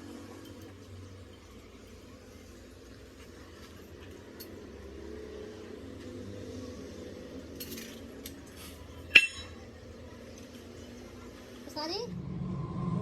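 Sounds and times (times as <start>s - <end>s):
light clinks: 0.0s - 5.0s, 7.3s - 11.0s
low hum: 0.0s - 13.0s.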